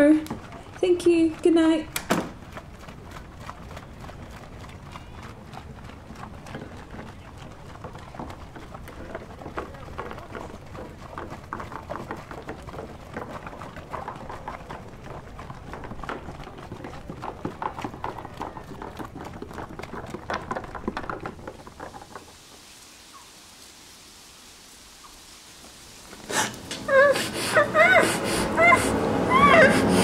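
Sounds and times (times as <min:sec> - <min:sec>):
faint hiss: 0:22.2 - 0:27.6.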